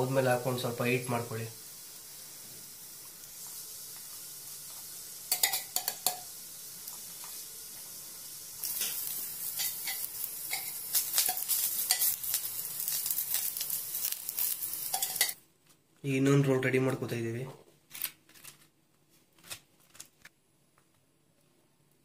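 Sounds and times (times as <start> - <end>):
food sizzling on a griddle: 0.0 - 15.4
spatula scraping a pan: 8.6 - 15.4.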